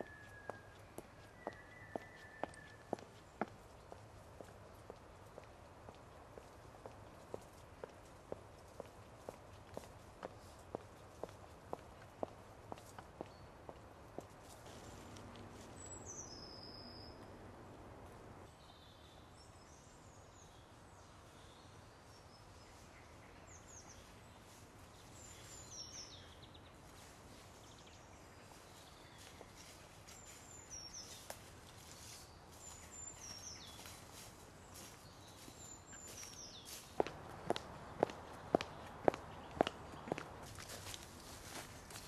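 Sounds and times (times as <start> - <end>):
footsteps on leaf litter: 28.6 - 42.0.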